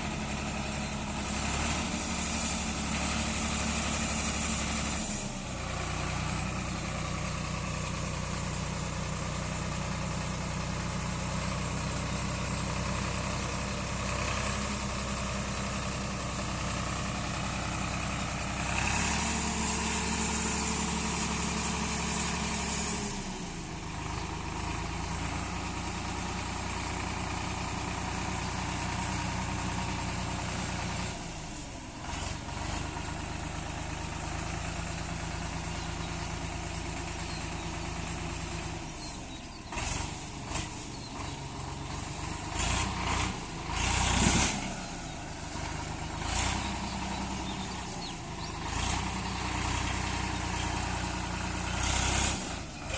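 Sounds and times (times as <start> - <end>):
engine revving: 0.0 - 8.5, 10.7 - 52.9
tractor diesel engine idling: 0.0 - 52.9.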